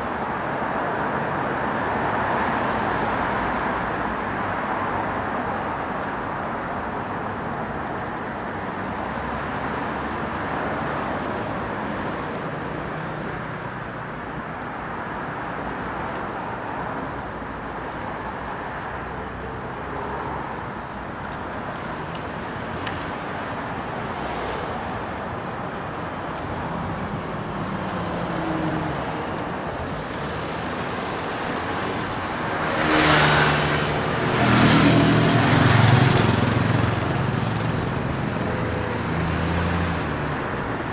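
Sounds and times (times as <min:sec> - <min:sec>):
road traffic: 0:00.0 - 0:40.9
loud vehicle passing close: 0:27.7 - 0:40.9.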